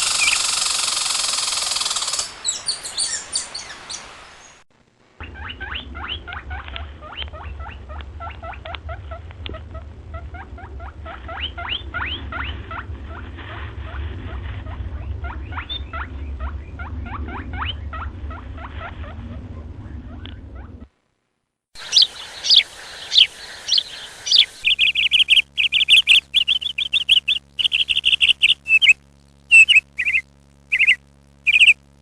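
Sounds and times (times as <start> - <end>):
small animal chirping: 0.0 - 3.7, 5.2 - 12.9, 14.6 - 18.7, 21.8 - 31.8
low rumble: 5.2 - 21.0.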